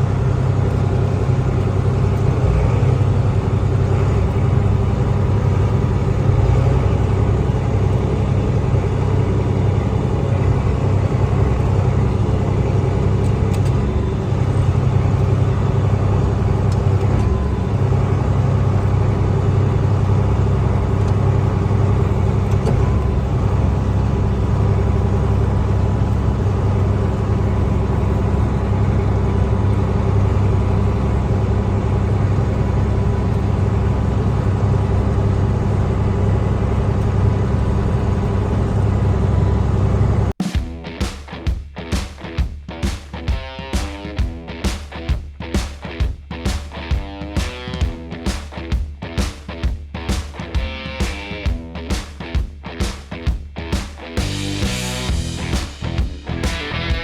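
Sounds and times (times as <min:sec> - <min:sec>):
combine harvester drone: 0:00.0 - 0:40.4, 0:54.2 - 0:57.0.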